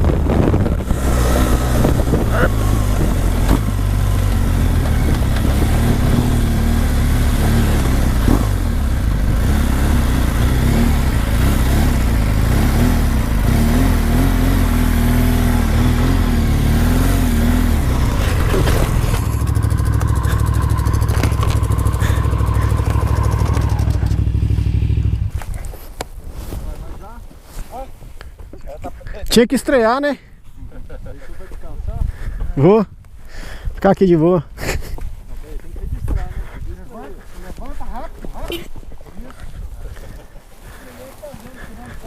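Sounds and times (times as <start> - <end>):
motorcycle engine under load: 0.0 - 26.0.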